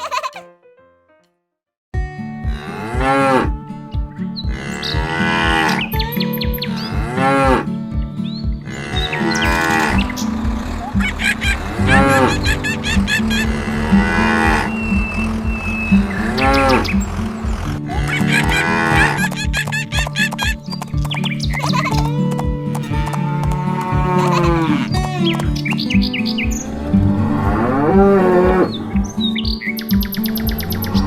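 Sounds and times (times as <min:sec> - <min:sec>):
steady pulsing beat: 0:02.0 - 0:31.0
cattle mooing: 0:08.7 - 0:19.2, 0:22.8 - 0:25.5.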